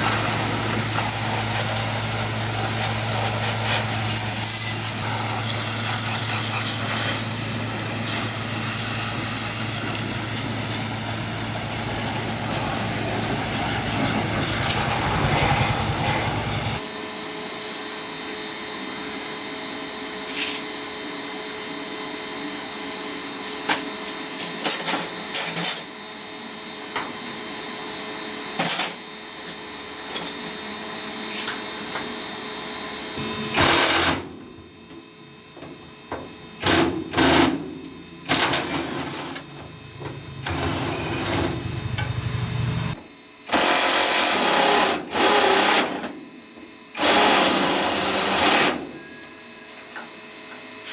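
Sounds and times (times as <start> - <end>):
electric power tool running: 0.0 - 16.8, 33.2 - 34.3, 38.2 - 46.1.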